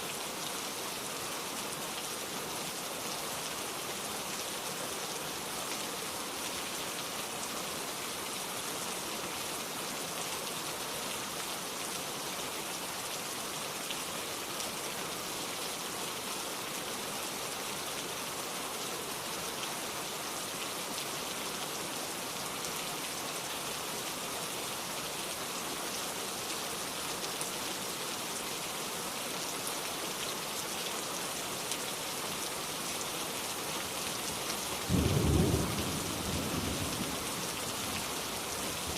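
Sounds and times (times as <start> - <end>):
rain pattering: 29.9 - 38.9.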